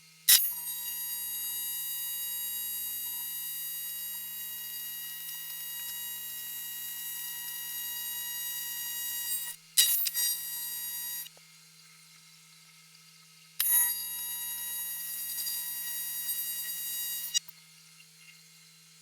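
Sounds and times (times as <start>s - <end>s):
welding arc buzzing: 0.3s - 11.3s, 13.6s - 17.5s.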